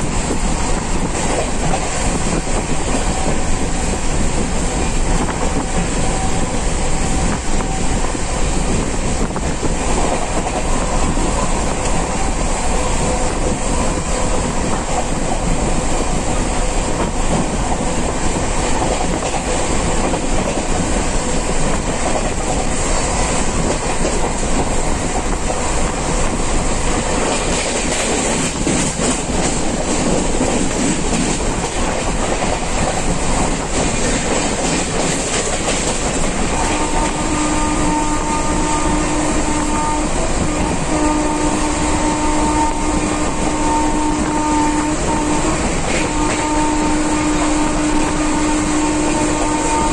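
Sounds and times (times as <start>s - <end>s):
train rumble and rush: 0.0s - 49.9s.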